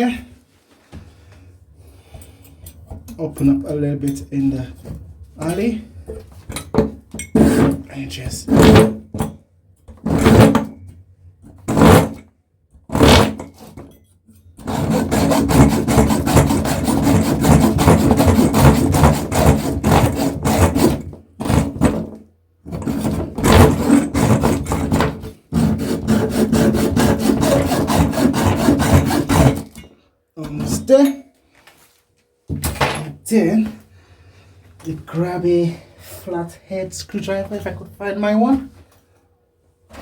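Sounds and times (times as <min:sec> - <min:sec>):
metal rasping and scraping: 0:07.2 - 0:09.0, 0:11.7 - 0:12.2, 0:14.6 - 0:31.0.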